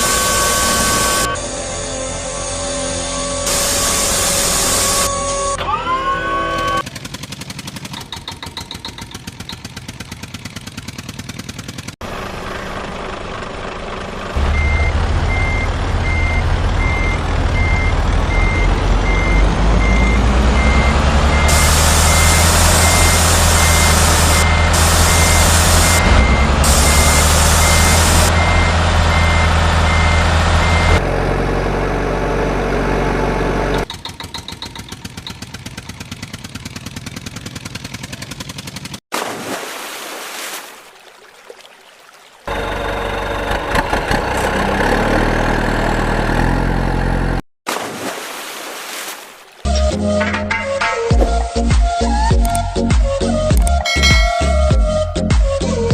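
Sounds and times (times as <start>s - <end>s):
reversing beeper: 0.0s - 6.8s, 14.4s - 31.0s, 53.8s - 55.0s
truck engine running: 0.0s - 39.0s, 42.5s - 47.4s.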